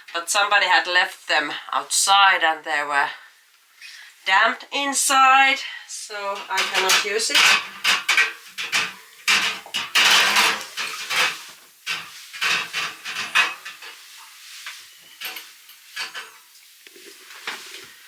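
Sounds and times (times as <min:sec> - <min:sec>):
dishes and cutlery clinking: 0:06.4 - 0:16.5.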